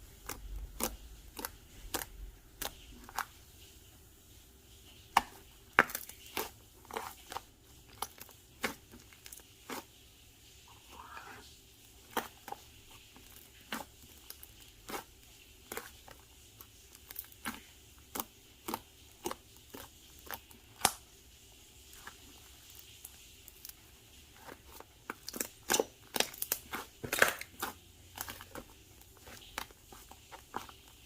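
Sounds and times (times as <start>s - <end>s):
slime squished by hand: 0.0s - 3.4s, 12.0s - 21.1s, 21.9s - 31.0s.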